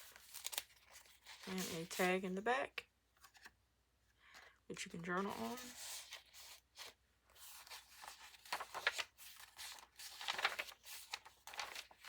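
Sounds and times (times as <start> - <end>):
paper rustling and crinkling: 0.0 - 2.2, 5.0 - 12.0.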